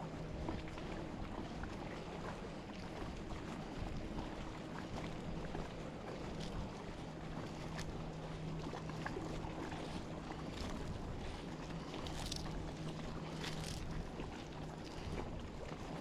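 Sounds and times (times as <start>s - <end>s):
motor humming low: 0.0s - 16.0s
wind and water hiss: 0.0s - 16.0s.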